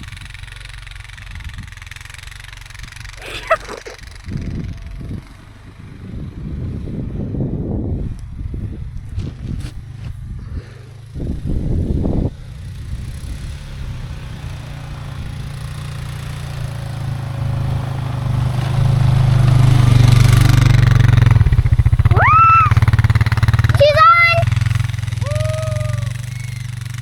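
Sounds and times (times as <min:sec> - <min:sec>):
atv engine running: 0:00.0 - 0:27.0
person shouting: 0:03.2 - 0:04.0, 0:22.1 - 0:22.8, 0:23.7 - 0:24.5, 0:25.2 - 0:26.2.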